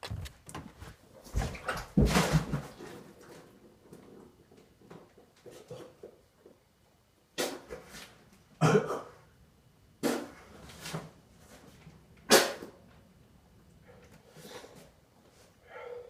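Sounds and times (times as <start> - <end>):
man coughing hard: 8.6 - 9.2.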